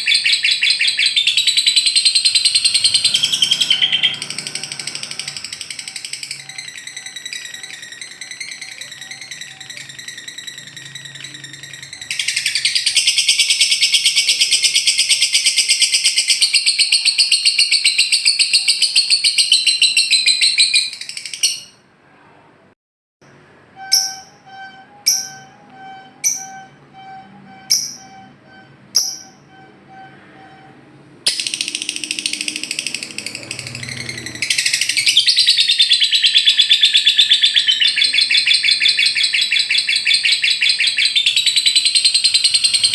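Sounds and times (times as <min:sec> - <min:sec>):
bird chattering trills: 0:00.0 - 0:21.8, 0:31.3 - 0:42.9
sharp bird chirps: 0:00.0 - 0:21.8, 0:23.8 - 0:30.6, 0:31.3 - 0:42.9.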